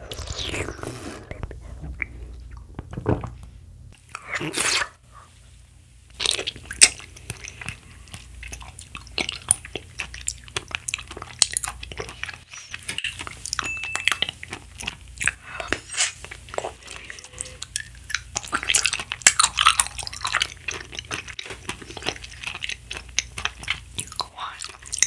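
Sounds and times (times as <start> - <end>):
mouth chewing jelly: 6.1 - 25.0.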